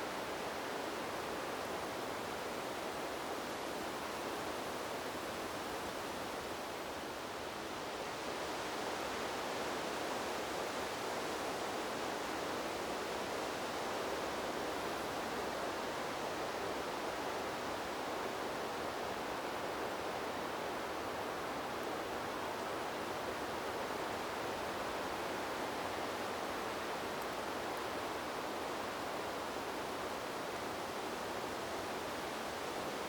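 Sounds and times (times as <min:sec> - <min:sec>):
wind blowing through trees: 0:00.0 - 0:33.0.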